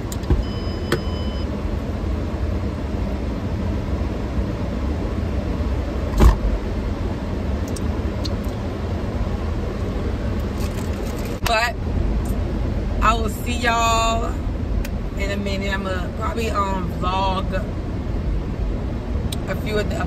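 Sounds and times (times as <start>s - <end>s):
car idling from inside cabin: 0.0s - 20.0s
sharp thump: 6.1s - 6.5s.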